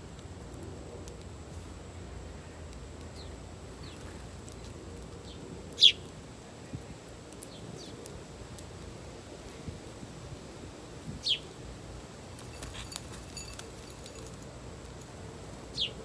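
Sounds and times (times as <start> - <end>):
low outdoor background noise: 0.0 - 16.0
birds chirping: 2.4 - 8.2, 11.2 - 11.6, 15.6 - 16.0.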